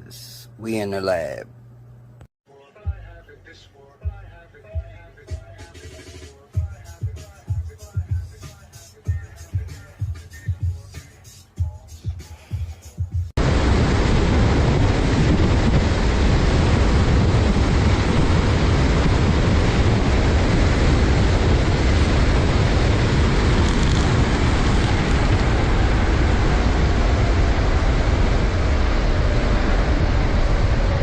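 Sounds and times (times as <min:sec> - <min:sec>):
wind buffeting microphone: 0:13.4 - 0:31.0.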